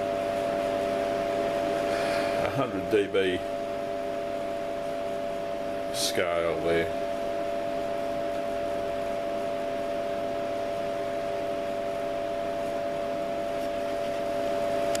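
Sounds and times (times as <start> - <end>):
cooling fans hissing: 0.0 - 15.0
mid-pitched hum tones: 0.0 - 15.0.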